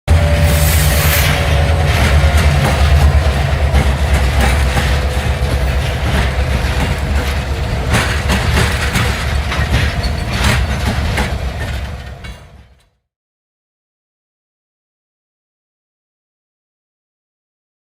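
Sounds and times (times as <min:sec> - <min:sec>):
train rumbling past: 0:00.1 - 0:13.0
train wheels clicking and clattering: 0:00.1 - 0:13.0.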